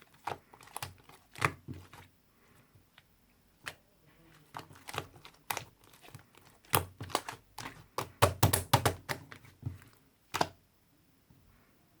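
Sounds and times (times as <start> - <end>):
taps and clicks of small objects: 6.7 - 9.3.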